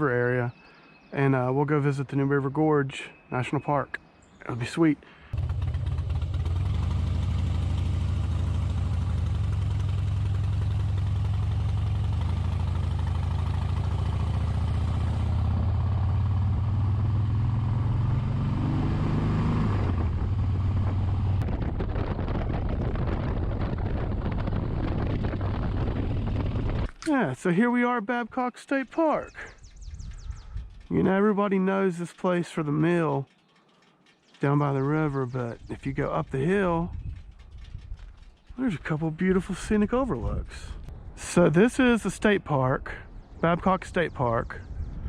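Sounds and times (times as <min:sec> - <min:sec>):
motorcycle engine running: 0:05.4 - 0:26.9, 0:33.3 - 0:40.9.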